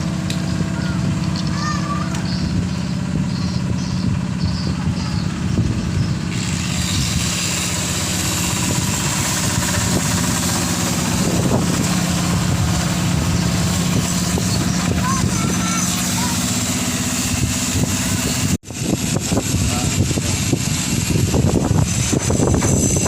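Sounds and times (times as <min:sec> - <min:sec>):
low mechanical hum: 0:00.0 - 0:23.0
strong wind gusting: 0:02.3 - 0:23.0.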